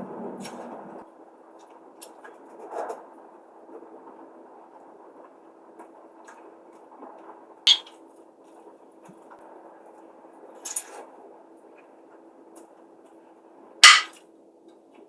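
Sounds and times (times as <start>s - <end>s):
spoon clinking against bowl: 7.7s - 7.9s, 13.8s - 14.1s
utensil clattering on dish: 7.7s - 7.9s, 13.8s - 14.1s.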